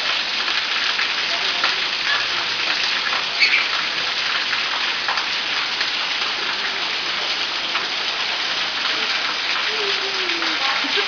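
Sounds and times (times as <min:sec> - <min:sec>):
shower water spraying: 0:03.2 - 0:04.0.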